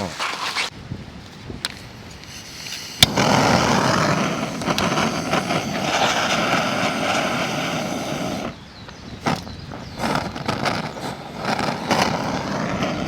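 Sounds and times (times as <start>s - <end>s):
gas torch ignition click: 1.6s - 8.5s
gas torch burning rush: 1.6s - 13.0s.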